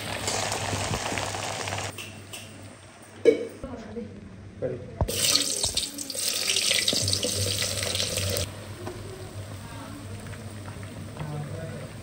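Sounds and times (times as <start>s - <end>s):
food sizzling in hot oil: 0.0s - 1.9s, 5.1s - 11.1s
oil bubbling: 5.1s - 12.0s.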